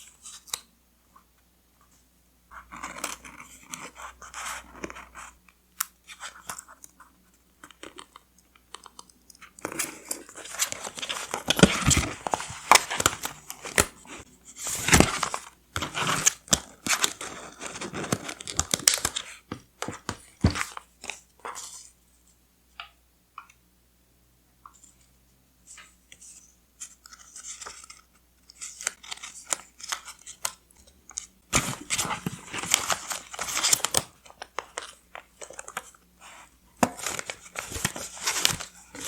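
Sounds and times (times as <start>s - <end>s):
paper rustling and crinkling: 9.6s - 21.8s, 26.8s - 39.0s.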